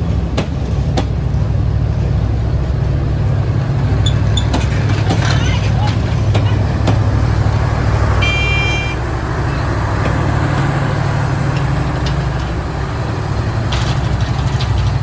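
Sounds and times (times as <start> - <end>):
low engine rumble: 0.0 - 15.0
vehicle horn beep: 8.2 - 9.0.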